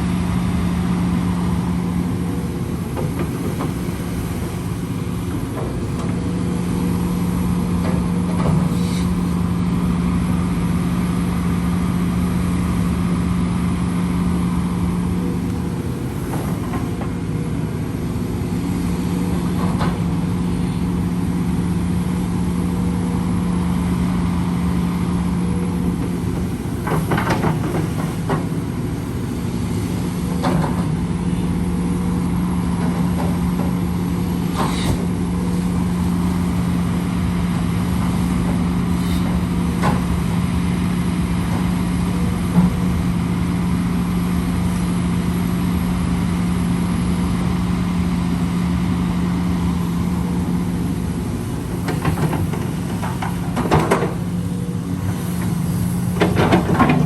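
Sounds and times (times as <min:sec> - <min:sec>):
heavy machinery engine running: 0:00.0 - 0:57.0
metal clanks and knocks: 0:56.2 - 0:57.0.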